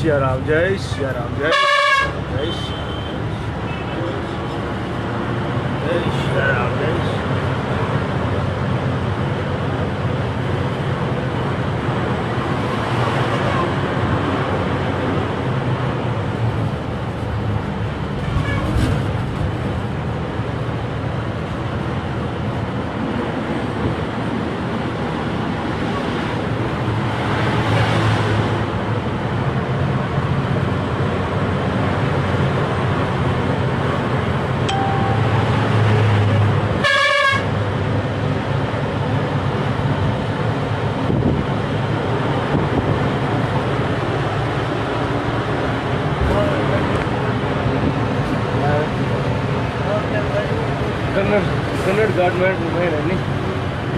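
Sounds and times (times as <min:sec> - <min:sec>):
road noise: 0:00.0 - 0:53.9
truck engine hum: 0:00.0 - 0:53.9
vehicle horn: 0:01.5 - 0:03.1, 0:36.8 - 0:37.5.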